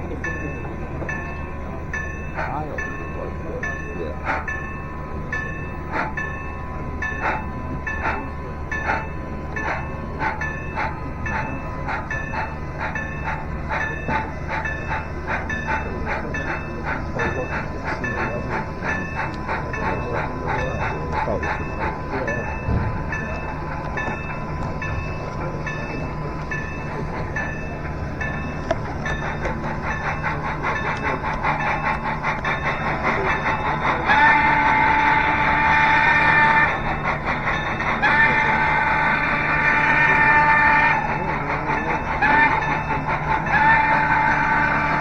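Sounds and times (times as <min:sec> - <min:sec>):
model steam locomotive chuffing: 0:00.0 - 0:45.0
locomotive whistle blowing: 0:16.5 - 0:45.0.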